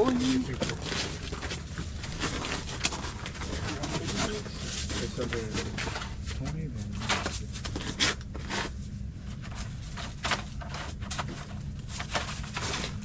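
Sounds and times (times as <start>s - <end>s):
scattered knocks and clicks: 0.0s - 8.4s
steady low hum: 0.0s - 13.0s.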